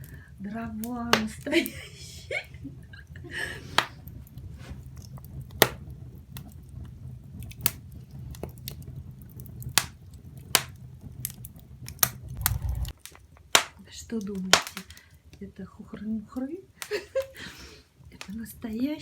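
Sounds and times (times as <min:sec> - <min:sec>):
firewood crackling and popping: 0:00.0 - 0:01.9, 0:02.7 - 0:19.0
low steady rumble: 0:12.2 - 0:13.0.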